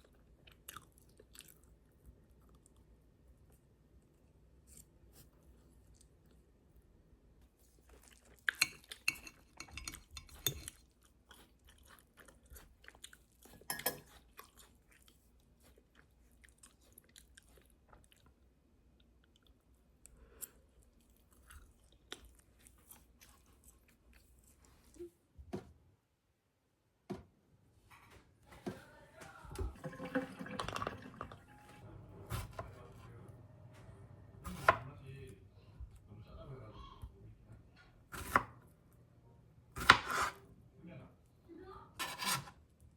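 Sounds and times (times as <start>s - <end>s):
person chewing crunchy food: 0.0s - 3.0s, 7.6s - 25.0s
water running and dripping: 29.6s - 31.8s.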